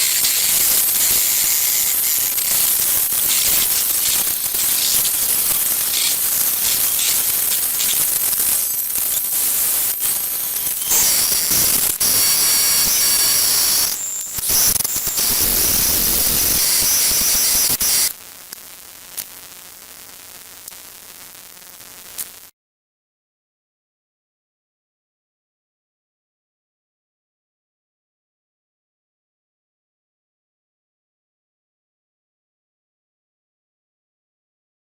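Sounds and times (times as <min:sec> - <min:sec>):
electronic static hiss with whines: 0:00.0 - 0:22.5.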